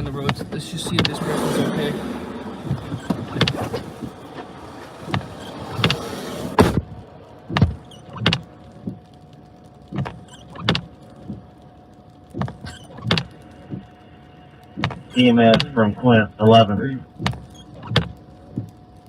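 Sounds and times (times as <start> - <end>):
vehicle cabin road noise: 0.0 - 19.0
car door shutting: 0.2 - 9.0, 14.8 - 15.8.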